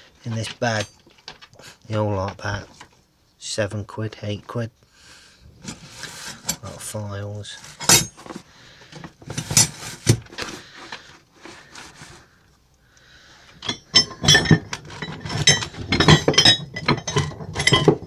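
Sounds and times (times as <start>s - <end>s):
metal files clinking in a bag: 7.5s - 8.4s, 9.2s - 12.2s, 13.6s - 18.0s.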